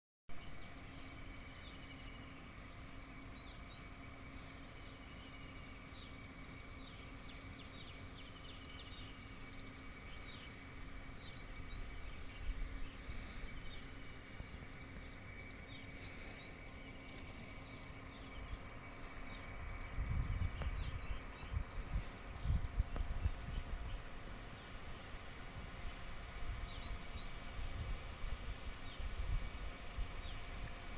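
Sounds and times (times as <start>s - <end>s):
birds chirping: 0.3s - 30.9s
faint high whine: 0.3s - 30.9s
low hum: 0.3s - 30.9s
wind buffeting microphone: 17.6s - 30.9s.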